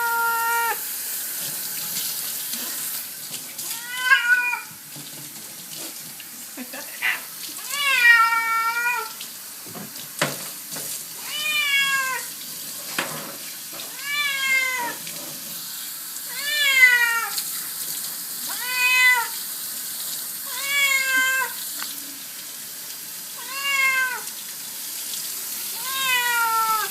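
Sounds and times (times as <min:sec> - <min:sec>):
cat meowing: 0:00.0 - 0:00.8, 0:03.6 - 0:04.7, 0:07.0 - 0:09.2, 0:11.2 - 0:12.3, 0:13.9 - 0:15.0, 0:16.3 - 0:17.4, 0:18.5 - 0:19.4, 0:20.4 - 0:21.6, 0:23.4 - 0:24.3, 0:25.7 - 0:26.9.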